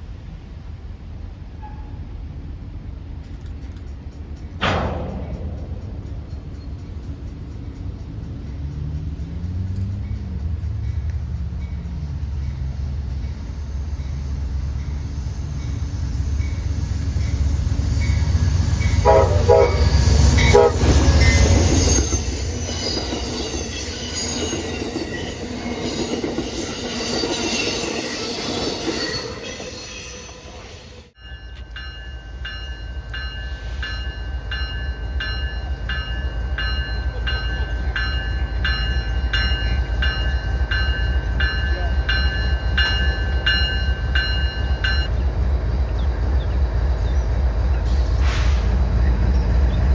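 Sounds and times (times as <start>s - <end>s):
train rolling past: 0.0s - 49.9s
diesel engine rumble: 3.4s - 16.3s
locomotive bell ringing: 4.2s - 45.2s
train horn blasts: 18.9s - 21.6s
wheel squeal: 19.6s - 31.1s.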